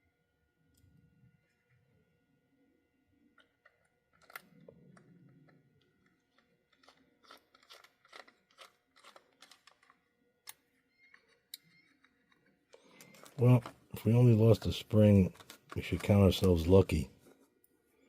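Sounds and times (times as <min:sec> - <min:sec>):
clicks of model train parts: 0:06.3 - 0:13.8.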